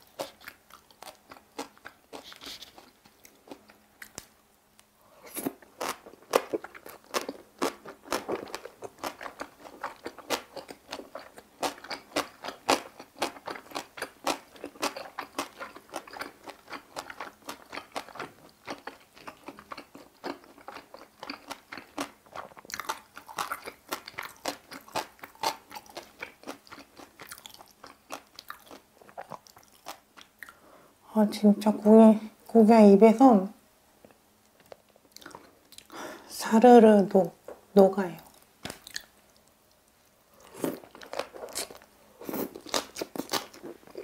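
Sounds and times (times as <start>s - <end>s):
crisp wet chewing: 5.3s - 30.6s, 38.3s - 44.0s.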